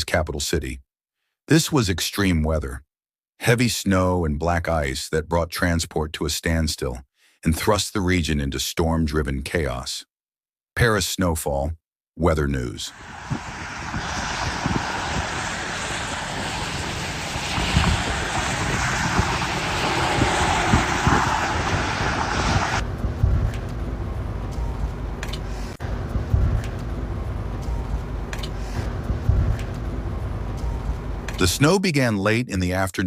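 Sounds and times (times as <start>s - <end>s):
low rumble: 12.9s - 31.4s
steady rushing noise: 12.9s - 31.4s
scattered clicks: 25.2s - 25.5s, 28.3s - 28.6s.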